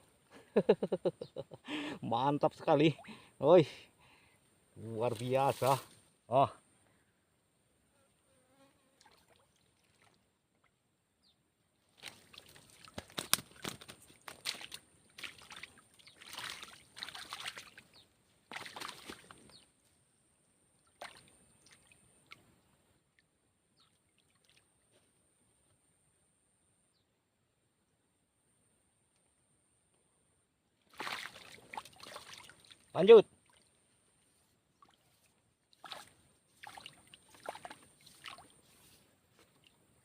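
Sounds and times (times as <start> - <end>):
water splashing and sloshing: 9.0 - 10.8, 11.8 - 19.6, 20.8 - 22.6, 23.9 - 25.0, 30.8 - 34.0, 34.7 - 39.8.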